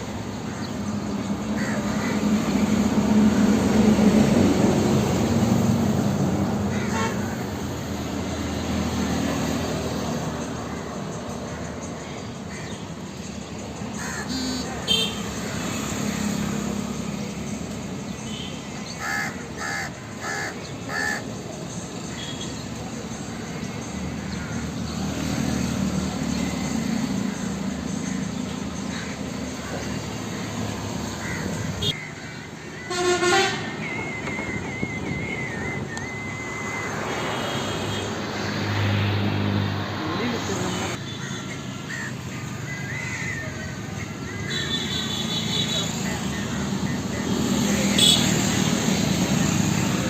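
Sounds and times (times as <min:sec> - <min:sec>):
outdoor background noise: 0:00.0 - 0:50.0
crows cawing: 0:01.5 - 0:02.7, 0:06.6 - 0:07.5, 0:11.5 - 0:12.9, 0:13.9 - 0:14.5, 0:18.8 - 0:21.3, 0:27.2 - 0:33.7, 0:41.0 - 0:45.4.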